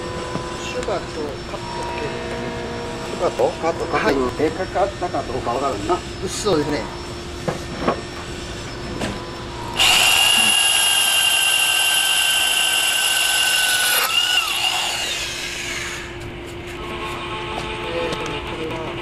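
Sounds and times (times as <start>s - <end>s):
power drill whining into tile: 9.8s - 16.2s.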